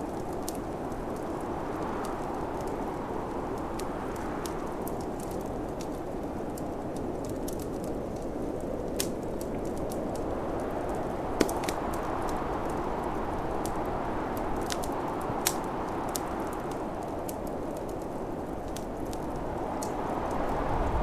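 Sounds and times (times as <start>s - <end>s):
wood fire crackling: 0.0s - 21.0s
sharp pops from fire: 3.4s - 12.8s, 13.4s - 20.1s
snowstorm wind rushing: 9.7s - 21.0s.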